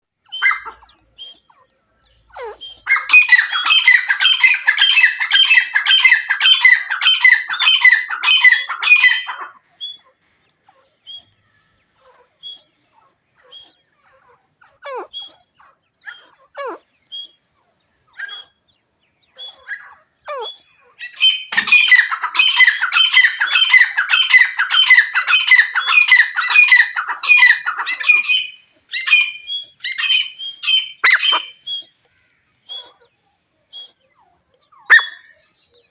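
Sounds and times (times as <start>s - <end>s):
partridge harsh repeated calls: 2.2s - 9.5s, 19.4s - 31.9s.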